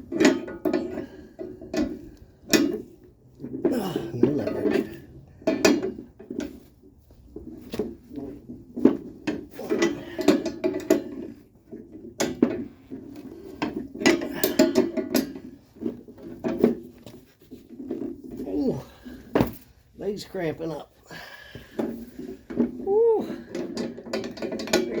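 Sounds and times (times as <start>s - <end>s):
metallic clanks of hand tools: 13.6s - 15.5s, 23.5s - 25.0s.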